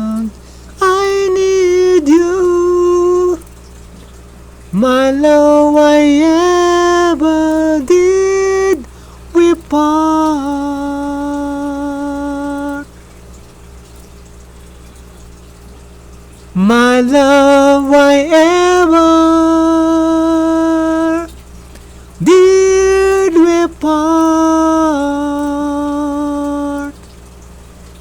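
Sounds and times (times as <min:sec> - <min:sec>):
solo voice singing: 0:00.0 - 0:03.5, 0:04.7 - 0:13.0, 0:16.5 - 0:27.0.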